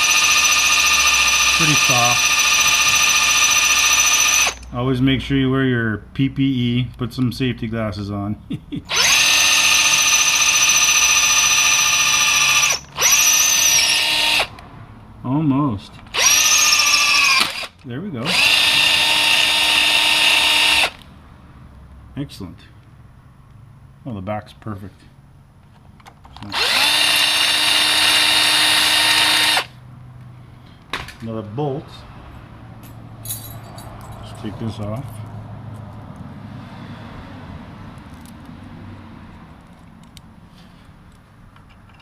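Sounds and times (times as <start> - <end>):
electric drill boring through metal: 0.0 - 4.6, 8.9 - 14.5, 16.2 - 21.0, 26.5 - 29.7.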